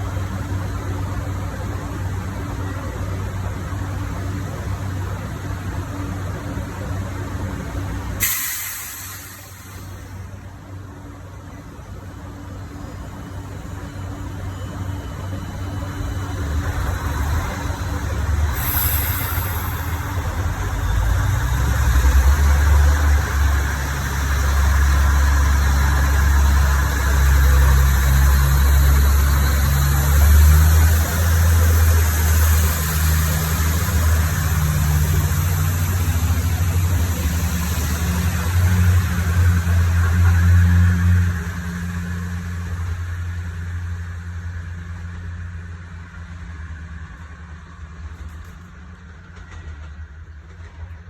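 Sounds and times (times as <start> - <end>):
diesel train engine humming: 0.0 - 51.0
short hiss: 8.2 - 10.3, 18.5 - 20.2.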